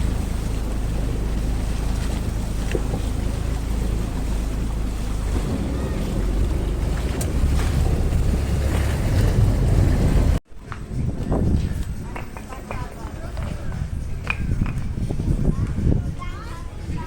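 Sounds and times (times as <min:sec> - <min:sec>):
rushing water: 0:00.0 - 0:10.4
wind buffeting microphone: 0:00.0 - 0:17.0.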